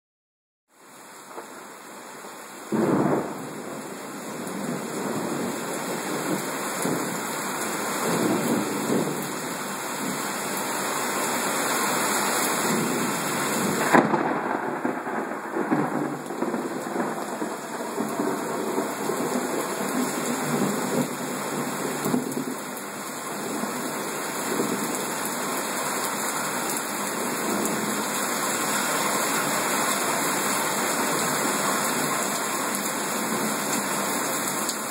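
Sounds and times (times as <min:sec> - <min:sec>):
heavy rain pouring: 0:00.7 - 0:34.9
thunder: 0:02.7 - 0:03.7, 0:13.6 - 0:22.6
sharp crack of thunder: 0:02.7 - 0:03.8, 0:13.6 - 0:22.5.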